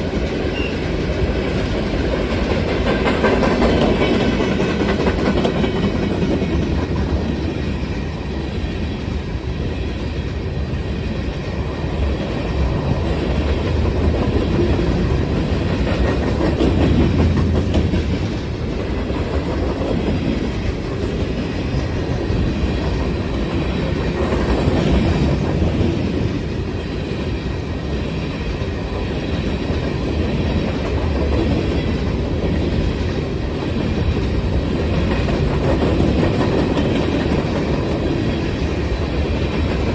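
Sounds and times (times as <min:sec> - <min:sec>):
wheels clicking over rail joints: 0:00.2 - 0:07.4.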